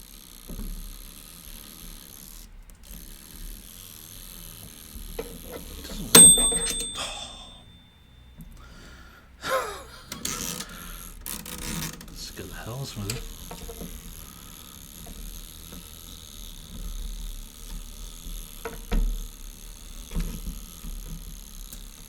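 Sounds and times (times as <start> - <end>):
handling noise: 5.2 - 7.8
toaster timer bell ding: 6.1 - 8.4.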